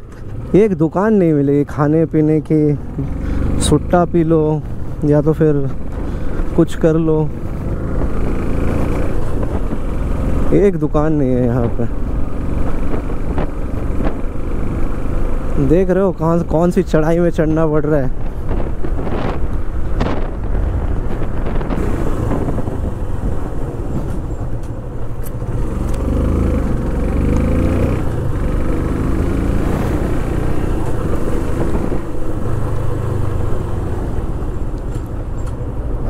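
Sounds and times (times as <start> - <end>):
wind noise on microphone: 7.5 - 10.0, 11.6 - 14.6, 18.0 - 25.5, 29.5 - 32.5.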